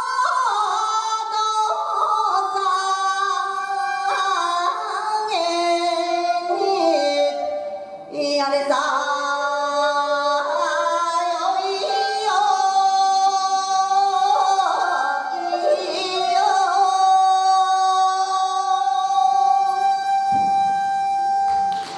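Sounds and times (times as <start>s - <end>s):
woman singing folk song: 8.1s - 20.2s.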